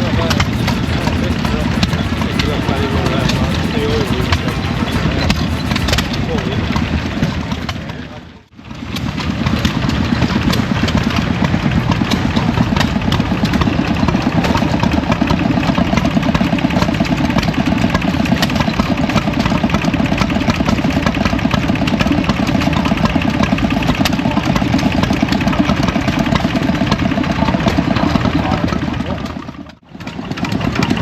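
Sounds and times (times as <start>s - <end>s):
engine running steadily: 0.0s - 8.2s.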